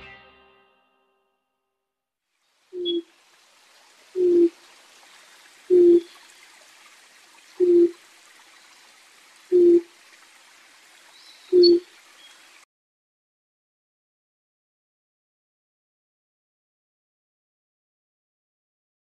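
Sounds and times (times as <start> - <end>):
faint hiss: 2.4 - 12.6
bird low hooting call: 2.8 - 3.0, 4.2 - 4.6, 5.7 - 6.2, 7.6 - 8.0, 9.5 - 9.9, 11.2 - 11.8
high bird chirp: 2.8 - 3.0, 11.1 - 12.4.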